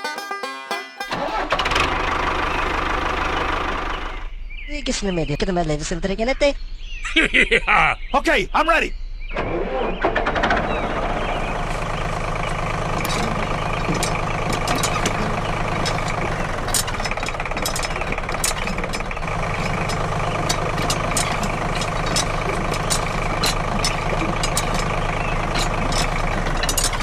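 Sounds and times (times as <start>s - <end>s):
sharp clicks and rattles: 1.0s - 4.2s, 10.0s - 27.0s
small engine idling: 1.1s - 4.7s, 9.0s - 27.0s.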